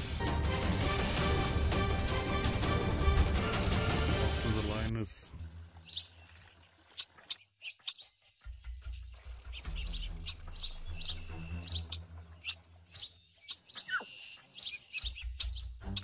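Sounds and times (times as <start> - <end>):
birds chirping: 4.5 - 16.0.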